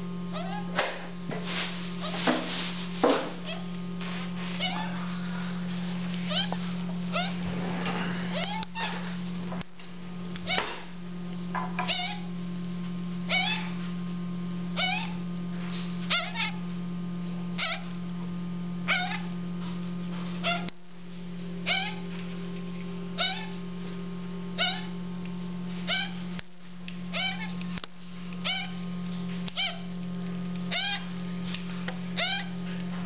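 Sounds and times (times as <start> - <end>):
steady low hum: 0.0 - 33.0
parrot chicks begging calls: 0.3 - 0.7, 4.6 - 5.1, 6.2 - 7.5, 8.1 - 9.2, 10.4 - 10.8, 11.8 - 12.3, 13.3 - 13.8, 14.8 - 15.2, 16.0 - 16.6, 17.6 - 17.9, 18.8 - 19.4, 20.4 - 20.8, 21.6 - 22.1, 23.2 - 23.6, 24.6 - 25.0, 25.8 - 26.3, 27.1 - 27.6, 28.4 - 28.8, 29.4 - 29.9, 30.7 - 31.2, 32.1 - 32.6.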